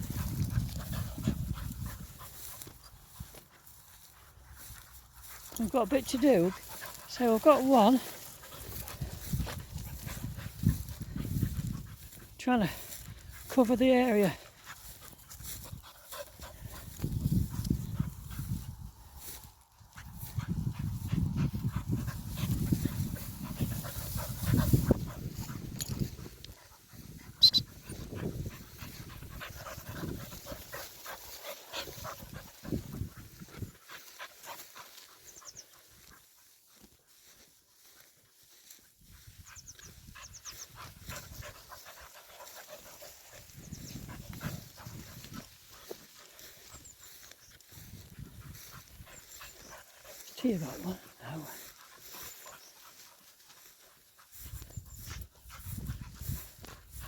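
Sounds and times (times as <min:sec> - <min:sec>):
dog panting hard: 0:00.0 - 0:36.4, 0:39.4 - 0:46.8, 0:48.0 - 0:57.0
rustling and scuffing in grass: 0:00.0 - 0:57.0.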